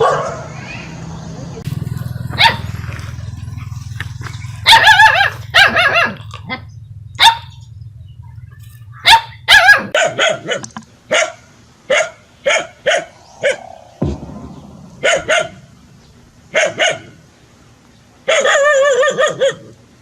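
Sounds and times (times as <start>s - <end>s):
dog barking: 0.0s - 0.6s, 2.4s - 2.8s, 4.6s - 6.6s, 7.2s - 7.6s, 9.0s - 13.6s, 16.6s - 17.2s, 18.3s - 19.8s.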